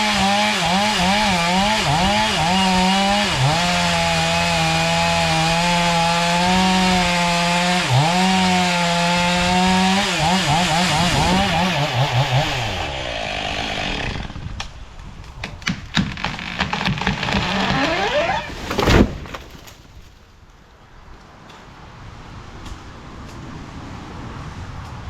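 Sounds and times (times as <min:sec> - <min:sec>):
chainsaw revving: 0:00.0 - 0:14.5, 0:16.0 - 0:18.8.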